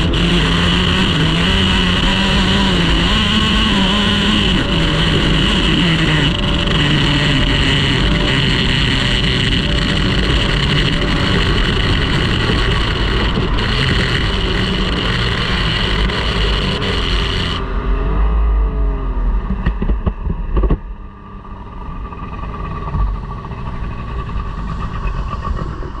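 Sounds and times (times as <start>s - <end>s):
outboard motor running hard: 0.0s - 17.9s
rushing wind: 0.0s - 18.0s, 19.4s - 26.0s.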